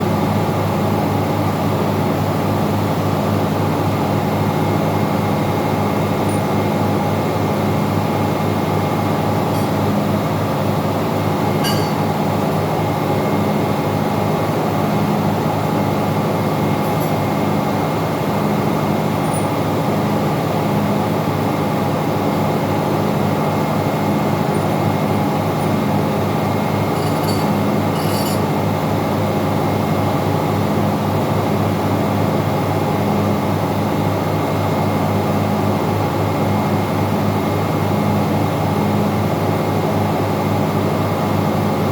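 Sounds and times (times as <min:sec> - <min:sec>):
faint clicks of metal parts: 0:06.3 - 0:06.5, 0:09.5 - 0:09.8, 0:16.8 - 0:17.2, 0:19.2 - 0:19.6, 0:24.5 - 0:25.9, 0:26.9 - 0:28.5
machinery droning: 0:23.2 - 0:28.6.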